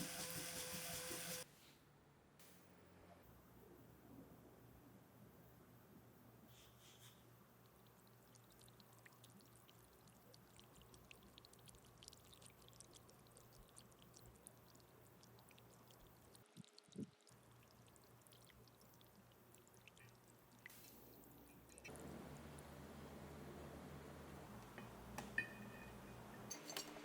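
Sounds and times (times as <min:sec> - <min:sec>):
faint ticks and crackles: 0:06.8 - 0:21.9.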